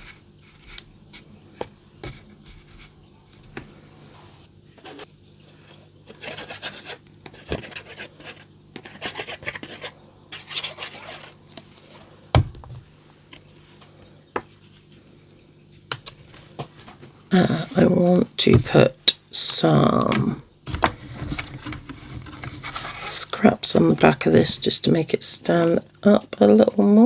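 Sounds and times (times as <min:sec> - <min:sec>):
paper card scratchy rubbing: 0:06.1 - 0:11.4, 0:25.3 - 0:25.9.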